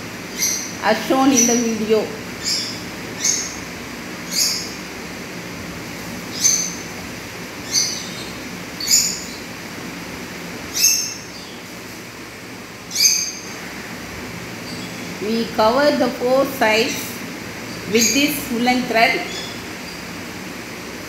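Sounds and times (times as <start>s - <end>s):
steady background noise: 0.0s - 21.0s
bird chirping: 0.3s - 4.8s, 6.3s - 6.9s, 7.6s - 9.5s, 10.7s - 11.6s, 12.9s - 13.6s, 17.7s - 20.1s.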